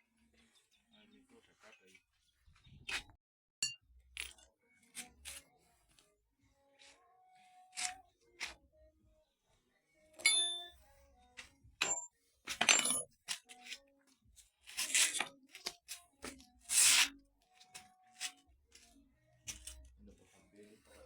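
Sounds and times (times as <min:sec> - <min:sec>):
metal tools clinking and scraping: 0:10.2 - 0:10.8, 0:11.8 - 0:13.8, 0:14.7 - 0:17.1, 0:19.5 - 0:19.9.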